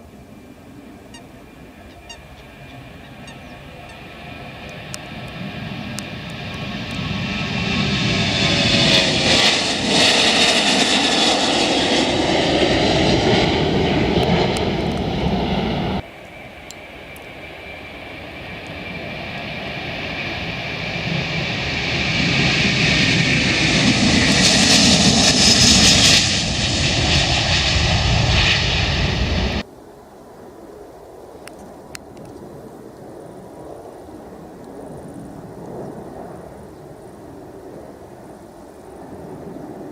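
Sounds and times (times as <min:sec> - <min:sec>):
jet airliner engines: 0:00.0 - 0:39.9.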